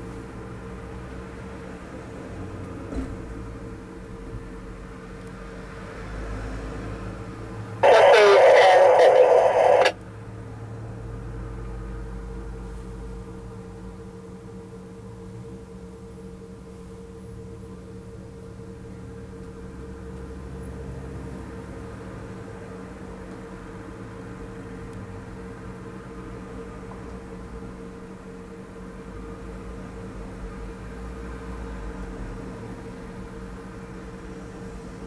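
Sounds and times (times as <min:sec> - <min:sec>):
excavator engine humming: 0:07.8 - 0:10.1.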